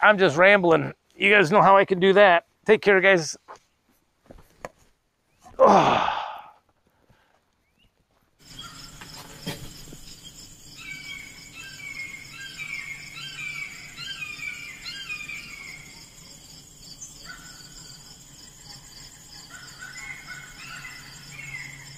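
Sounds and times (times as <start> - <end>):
birds chirping: 7.6 - 21.9
insects trilling: 8.4 - 21.9.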